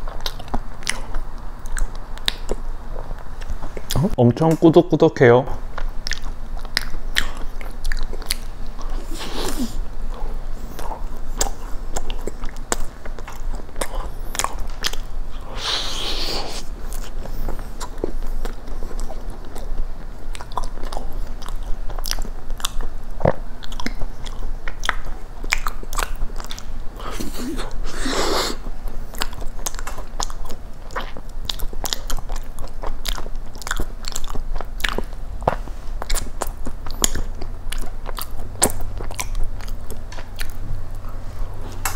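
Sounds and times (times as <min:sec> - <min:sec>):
chewing and biting: 0:00.0 - 0:04.1, 0:05.6 - 0:41.9
wet mouth clicks: 0:03.4 - 0:04.2, 0:06.0 - 0:09.7.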